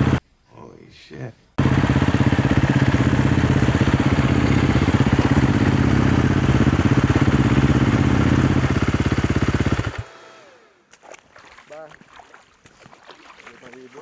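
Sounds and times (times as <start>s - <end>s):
motorcycle engine idling: 0.0s - 0.2s, 1.6s - 10.1s.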